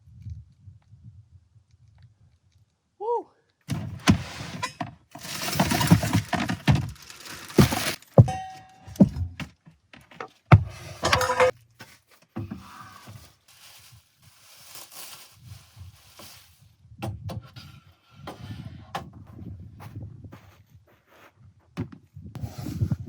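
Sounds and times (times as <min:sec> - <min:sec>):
gear knocking and clattering: 0:03.7 - 0:11.5.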